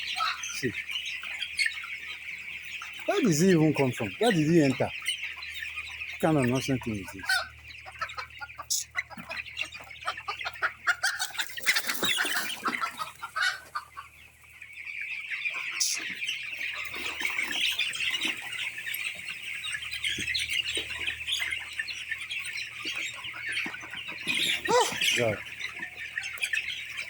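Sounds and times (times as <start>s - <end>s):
chickens clucking and squawking: 0.0s - 27.0s
wings flapping: 11.3s - 13.0s.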